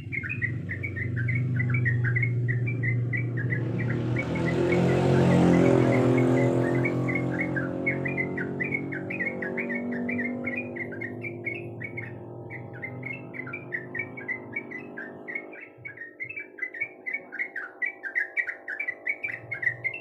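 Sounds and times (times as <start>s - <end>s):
low engine hum: 0.0s - 15.4s
bulbul singing chattering notes: 0.0s - 20.0s.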